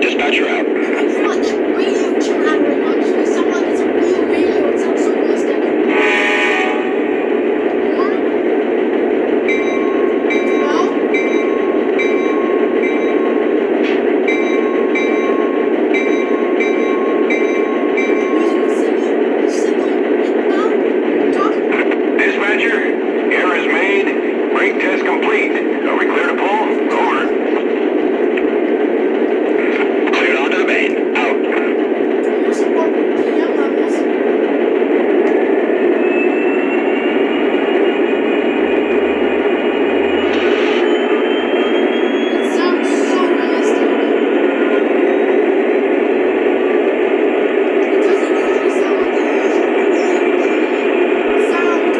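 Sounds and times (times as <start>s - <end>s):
model train running rumble: 0.0s - 36.3s, 37.1s - 51.9s
faint rising whine: 34.8s - 42.6s.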